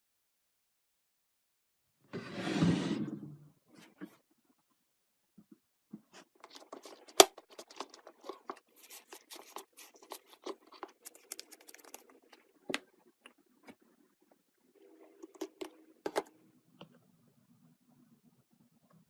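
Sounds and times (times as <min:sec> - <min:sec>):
handling clicks and crinkles: 0:06.0 - 0:13.8.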